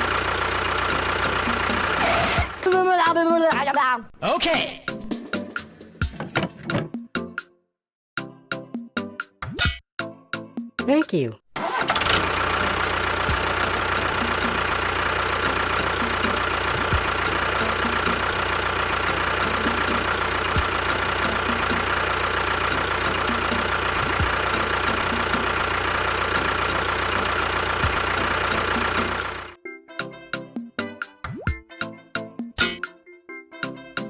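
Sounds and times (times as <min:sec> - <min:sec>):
small tractor engine idling: 0:00.0 - 0:02.8, 0:11.6 - 0:29.6.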